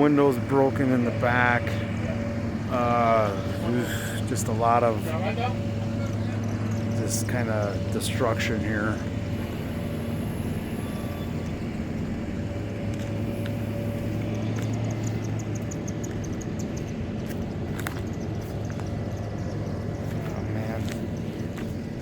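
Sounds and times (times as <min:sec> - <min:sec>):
car engine and road rumble: 0:00.0 - 0:22.0
rapid high-pitched ticks: 0:12.9 - 0:21.6.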